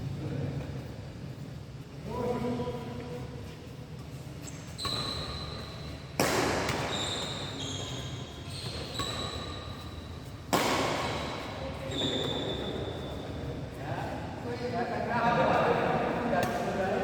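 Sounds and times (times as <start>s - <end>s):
shoes squeaking on court floor: 2.2s - 13.8s
badminton racket strikes: 8.7s - 11.6s.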